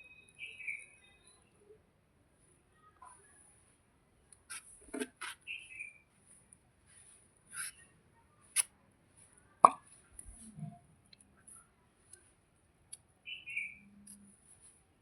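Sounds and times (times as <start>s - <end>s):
faint high bird chirping: 0.0s - 1.8s, 5.4s - 6.1s, 13.2s - 14.2s.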